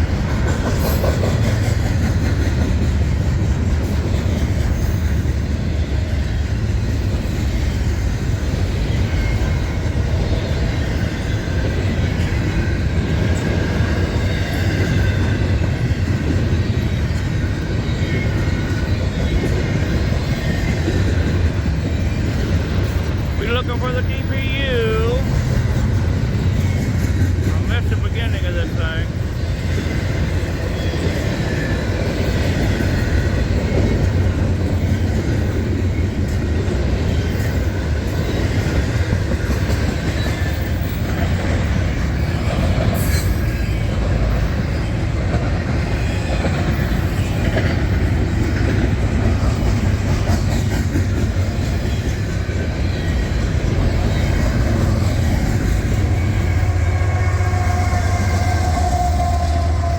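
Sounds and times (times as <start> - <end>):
freight train rumble: 0.0 - 59.9
steel wheels clattering on rails: 0.0 - 59.9.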